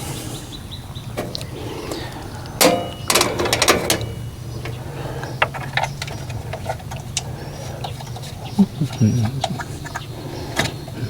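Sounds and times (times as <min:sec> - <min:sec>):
steady low hum: 0:00.0 - 0:11.0
sharp clicks with ringing: 0:02.1 - 0:06.4
metal tools clinking and rattling: 0:02.6 - 0:10.0.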